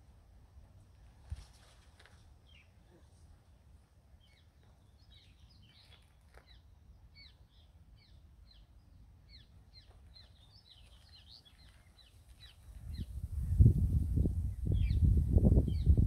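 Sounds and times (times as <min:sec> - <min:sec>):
small birds chirping: 0:04.1 - 0:16.0.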